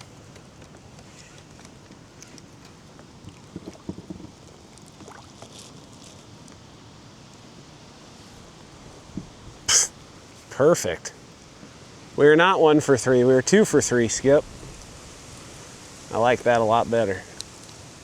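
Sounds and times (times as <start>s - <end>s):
steady outdoor hiss: 0.0s - 18.0s
dull knocks against a kayak: 3.5s - 4.4s
light ticks: 17.4s - 17.8s.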